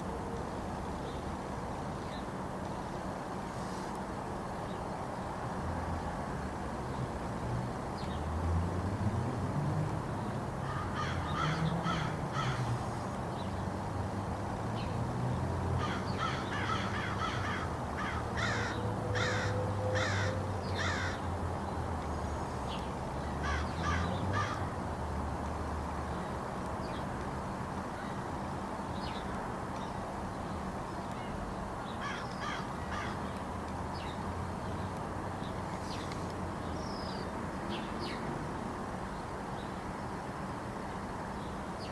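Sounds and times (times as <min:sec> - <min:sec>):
crows cawing: 0:10.6 - 0:12.7, 0:15.8 - 0:21.3, 0:23.4 - 0:24.7, 0:32.0 - 0:33.2.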